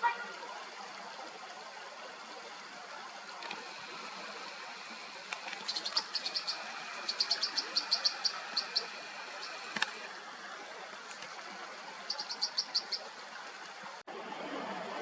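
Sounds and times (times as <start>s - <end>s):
mountain stream rushing: 0.0s - 15.0s
bird short high sharp calls: 5.6s - 9.8s.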